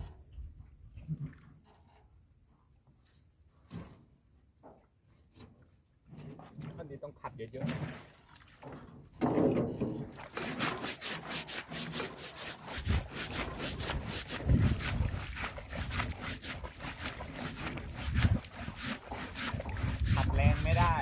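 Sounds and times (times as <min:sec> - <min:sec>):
scrubbing strokes: 0:10.1 - 0:21.0.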